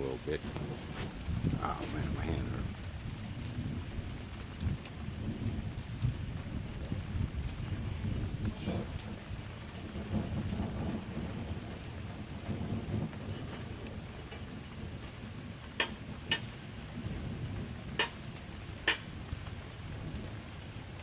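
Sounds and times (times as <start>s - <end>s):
rain falling: 0.0s - 21.0s
sharp drip taps: 18.0s - 18.2s.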